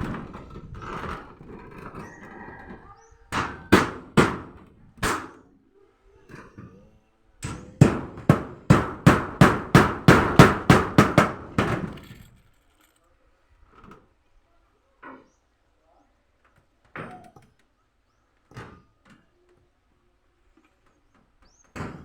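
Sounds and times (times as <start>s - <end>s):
hammer strikes: 7.4s - 11.9s.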